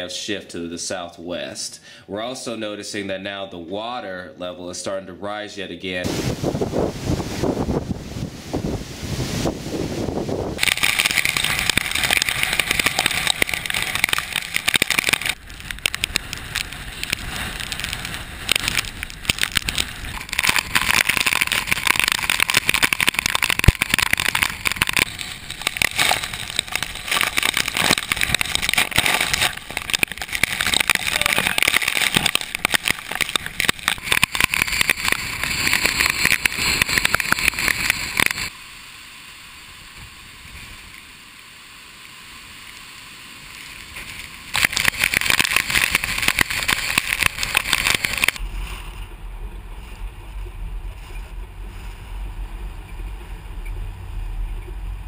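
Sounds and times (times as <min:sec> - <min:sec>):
wind buffeting microphone: 0:06.1 - 0:14.4.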